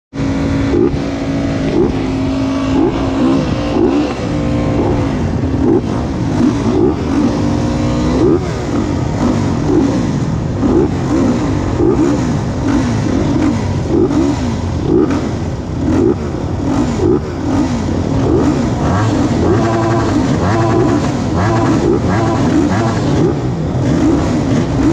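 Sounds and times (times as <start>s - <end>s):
motocross motorcycle engines revving: 0.2s - 24.9s.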